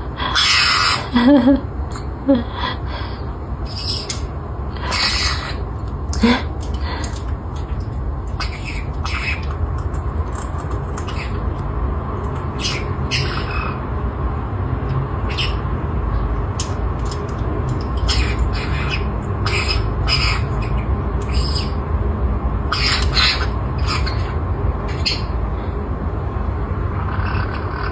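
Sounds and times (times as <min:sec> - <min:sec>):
steady low rumble: 0:00.0 - 0:27.9
parrot squawky chirps: 0:00.3 - 0:01.1, 0:03.7 - 0:07.7, 0:08.3 - 0:09.6, 0:10.3 - 0:11.4, 0:12.5 - 0:13.8, 0:15.2 - 0:15.7, 0:17.8 - 0:21.8, 0:22.7 - 0:25.3.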